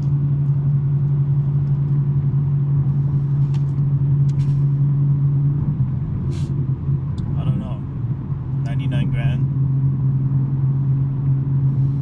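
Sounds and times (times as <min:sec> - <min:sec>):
car exhaust droning: 0:00.0 - 0:12.0.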